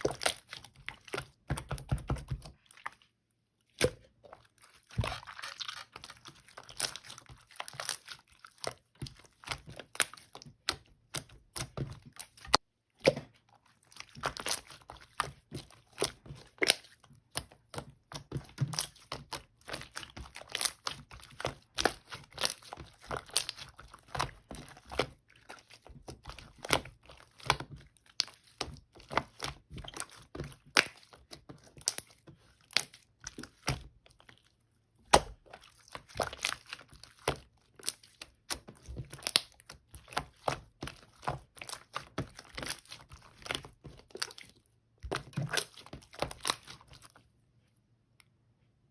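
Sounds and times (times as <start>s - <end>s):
slime clicking and crackling: 14.0s - 47.2s.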